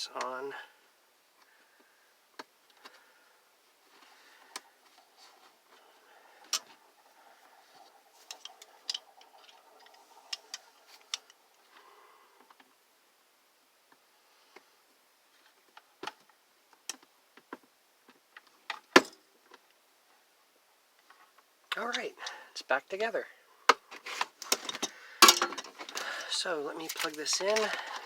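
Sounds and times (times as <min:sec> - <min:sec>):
faint rustling: 0:01.4 - 0:12.9, 0:23.8 - 0:28.0.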